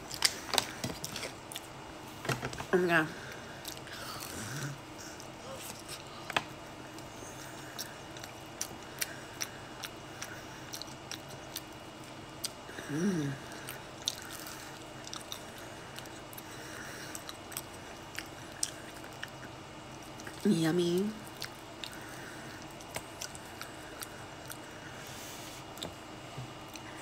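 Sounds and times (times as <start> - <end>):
person humming: 12.7 - 13.5.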